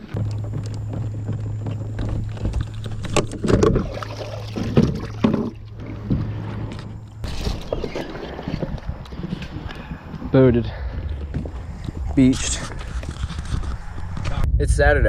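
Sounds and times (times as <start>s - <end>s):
knocks and splashes: 0.0s - 6.5s
steady low hum: 0.0s - 15.0s.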